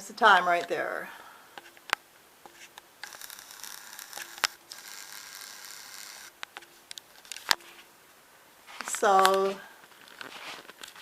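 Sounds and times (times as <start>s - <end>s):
rustling handling noise: 6.4s - 11.0s.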